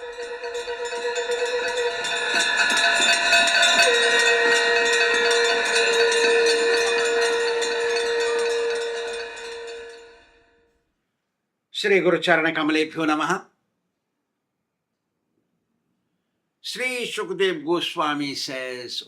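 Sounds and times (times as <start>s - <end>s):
rapid bell ringing: 0.0s - 10.5s
horn-like held note: 3.8s - 10.6s.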